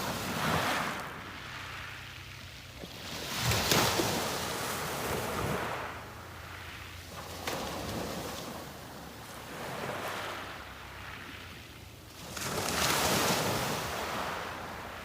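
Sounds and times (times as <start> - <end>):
sea waves breaking on beach: 0.0 - 15.0.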